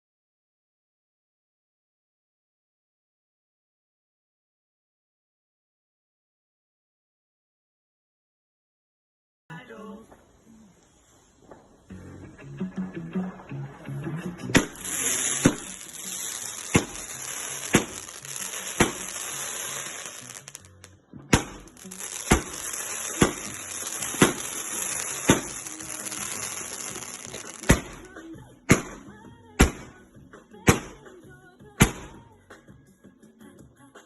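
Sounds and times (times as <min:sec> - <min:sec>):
crackling hiss: 0:10.1 - 0:12.0, 0:14.6 - 0:28.2
fireworks bangs: 0:14.6 - 0:20.7, 0:21.3 - 0:30.0.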